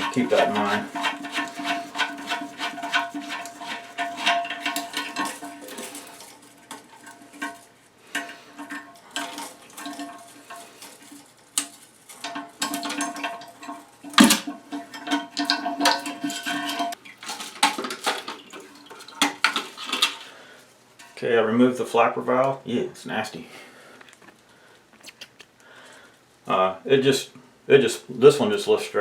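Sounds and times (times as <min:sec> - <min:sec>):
hard plastic knocks and clatter: 0:00.0 - 0:07.6, 0:08.2 - 0:20.2.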